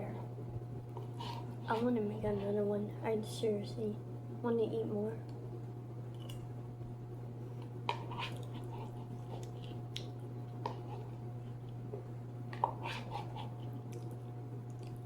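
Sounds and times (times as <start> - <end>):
steady low hum: 0.0 - 15.0
food crunching: 6.1 - 6.5, 8.0 - 11.9, 12.6 - 15.0
chewing and mouth clicks: 8.0 - 11.8, 13.4 - 15.0.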